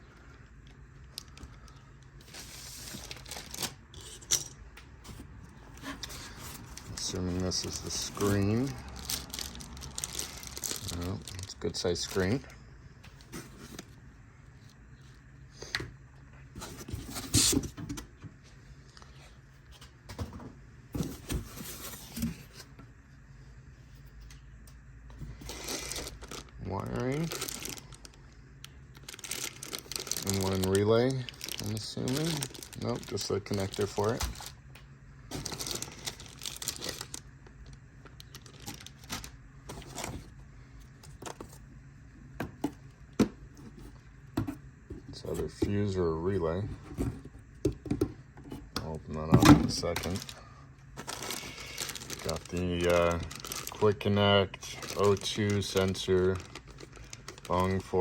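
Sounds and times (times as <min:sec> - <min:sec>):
packaging rustling: 0:01.1 - 0:04.2, 0:05.1 - 0:12.5, 0:21.0 - 0:22.7, 0:25.3 - 0:28.2, 0:28.9 - 0:34.6, 0:35.3 - 0:41.7, 0:49.7 - 0:58.0.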